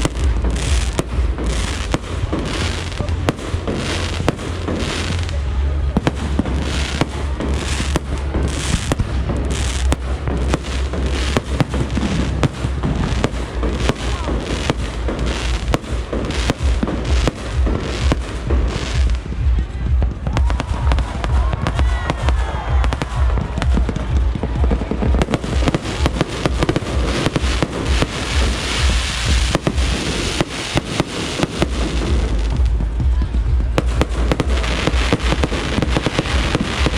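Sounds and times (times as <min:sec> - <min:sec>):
fireworks bangs and crackling: 0:00.0 - 0:36.9
low rumble: 0:00.0 - 0:36.9.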